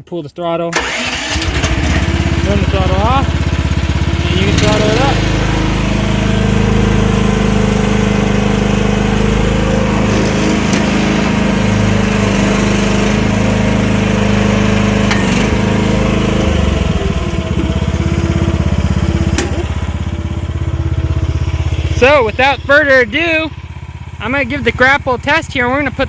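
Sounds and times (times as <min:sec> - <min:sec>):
excavator engine running: 0:00.8 - 0:26.0.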